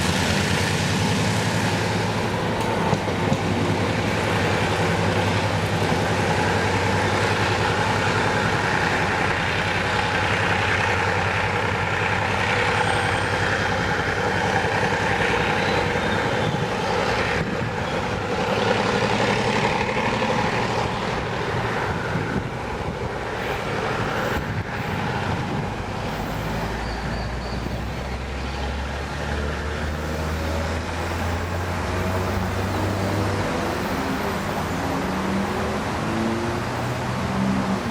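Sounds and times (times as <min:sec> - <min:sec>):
locomotive engine drone: 0:00.0 - 0:37.9
moving train noise: 0:00.0 - 0:37.9.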